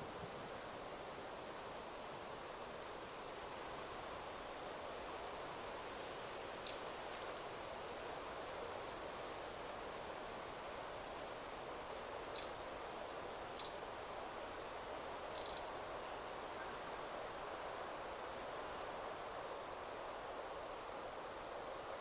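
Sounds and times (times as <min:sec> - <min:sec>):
wind rustling trees: 0:00.0 - 0:22.0
faint high bird trill: 0:15.3 - 0:15.7
bird calling: 0:15.4 - 0:15.6.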